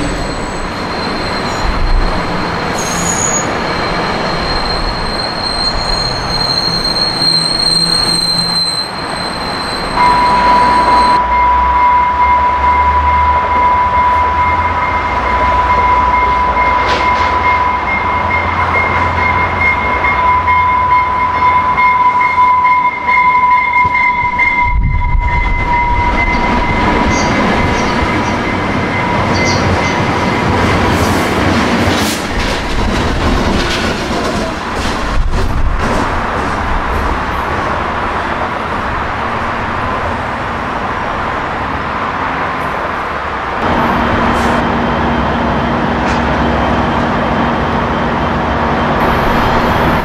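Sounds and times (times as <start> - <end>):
train wheels squealing: 0.0 - 11.7, 13.8 - 30.1
train rumble and rail noise: 0.0 - 50.0.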